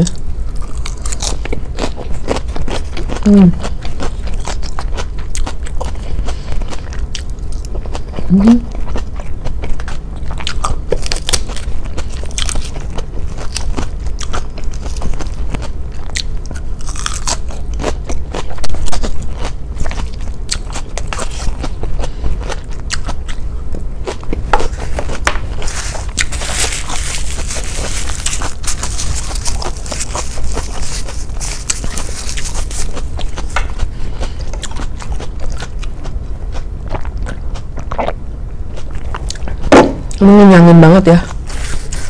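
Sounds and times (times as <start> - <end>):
chewing crisp salad greens: 0.0 - 40.3, 41.1 - 42.0
paper tissue rustling: 24.6 - 33.6, 41.3 - 42.0.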